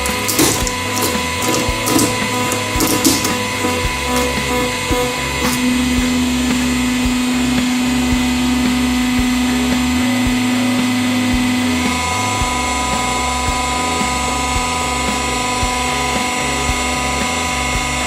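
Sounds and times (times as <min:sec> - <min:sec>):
hydraulic press motor humming: 0:00.0 - 0:11.8.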